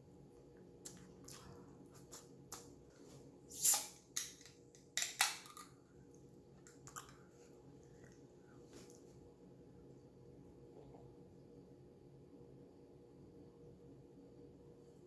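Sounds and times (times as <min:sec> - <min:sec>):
person chewing and smacking: 0:00.4 - 0:02.8, 0:05.4 - 0:09.1.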